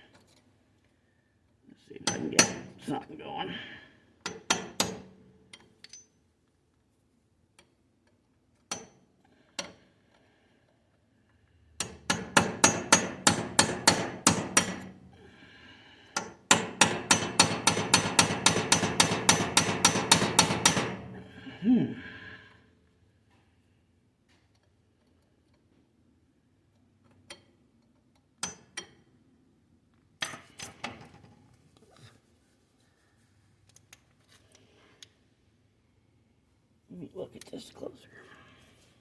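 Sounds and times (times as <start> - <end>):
hammer striking steel punch: 11.8 - 15.0, 16.2 - 21.3.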